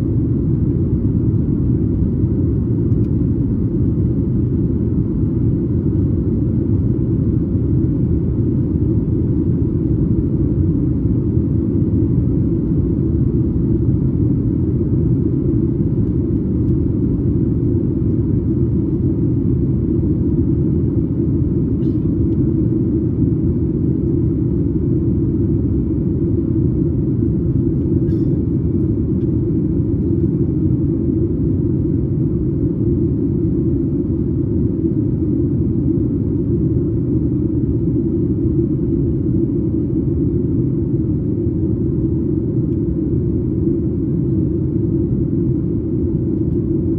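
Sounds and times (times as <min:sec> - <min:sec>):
airplane cabin engine rumble: 0:00.0 - 0:46.9.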